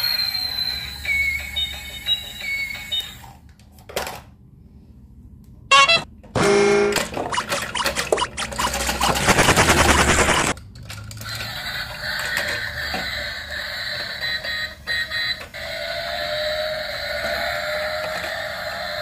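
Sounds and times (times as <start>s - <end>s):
toy motor rattling: 7.2s - 19.0s.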